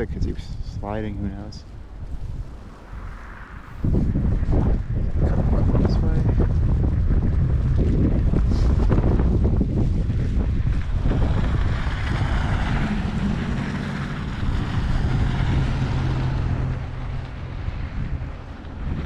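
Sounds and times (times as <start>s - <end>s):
wind buffeting microphone: 0.0s - 19.0s
low engine hum: 0.1s - 19.0s
vehicle hiss passing: 1.2s - 4.1s.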